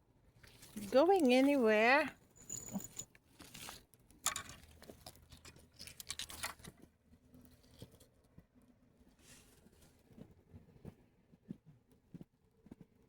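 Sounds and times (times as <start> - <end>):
rustling: 0.4 - 8.2.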